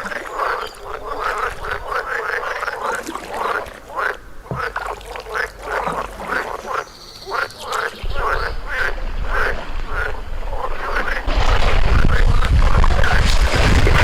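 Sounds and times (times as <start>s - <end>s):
frogs croaking: 0.0s - 12.4s
wind rumble on microphone: 1.0s - 2.0s, 8.0s - 14.0s.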